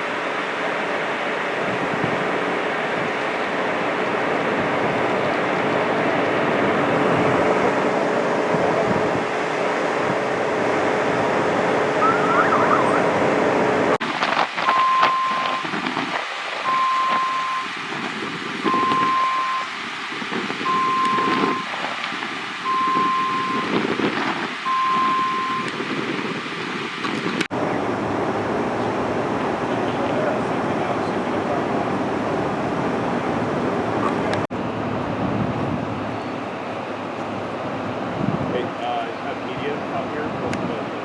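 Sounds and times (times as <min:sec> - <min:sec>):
rumbling engine: 0:00.0 - 0:41.0
street noise: 0:00.0 - 0:41.0
vehicle back-up alarm beeping: 0:12.0 - 0:13.2, 0:14.6 - 0:17.9, 0:18.6 - 0:19.8, 0:20.6 - 0:21.9, 0:22.6 - 0:25.9.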